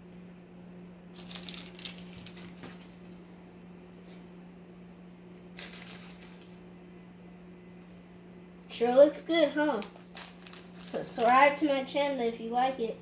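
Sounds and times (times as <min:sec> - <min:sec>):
steady low hum: 0:00.0 - 0:13.0
candy packet rustling and crinkling: 0:01.1 - 0:03.4, 0:05.4 - 0:06.6, 0:09.7 - 0:11.7.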